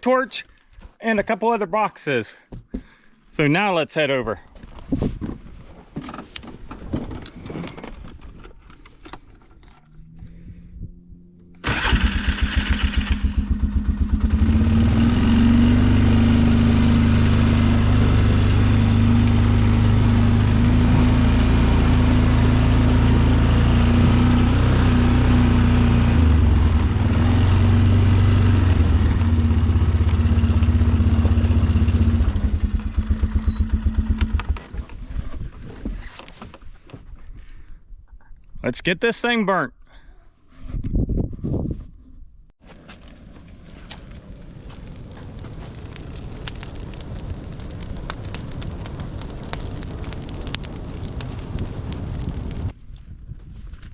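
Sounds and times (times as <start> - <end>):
small engine cranking and running: 11.6 - 34.9.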